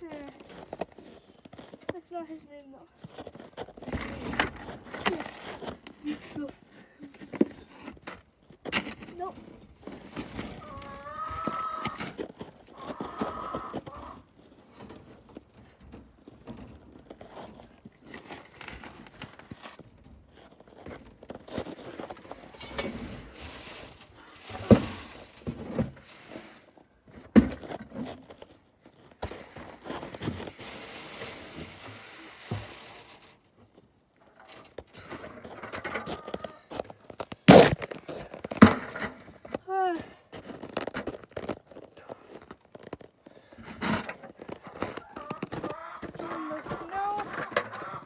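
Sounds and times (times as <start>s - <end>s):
rustling and crinkling: 0.0s - 48.0s
footsteps: 20.8s - 27.3s.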